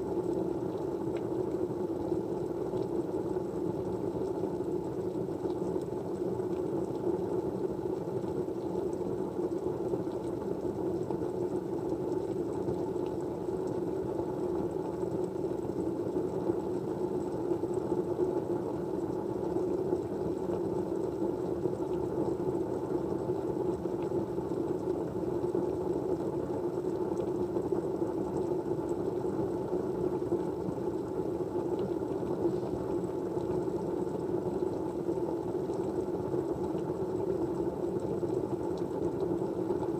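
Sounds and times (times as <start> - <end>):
faint ticks: 0.3 - 1.4.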